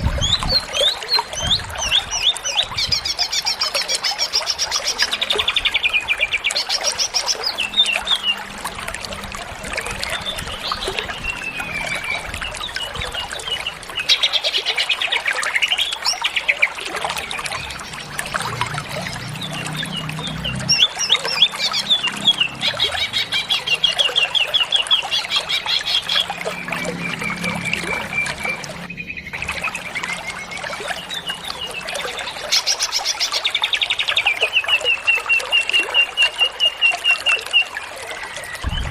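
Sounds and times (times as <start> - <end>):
songbird singing trills and whistles: 0.0 - 8.5.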